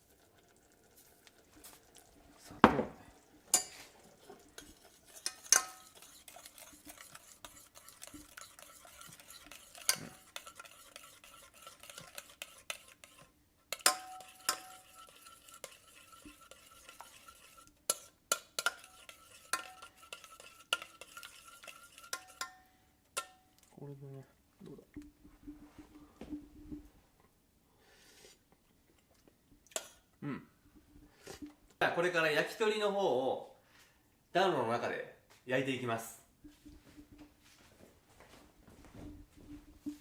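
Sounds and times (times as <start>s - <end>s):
utensil scraping a bowl: 3.5s - 23.4s.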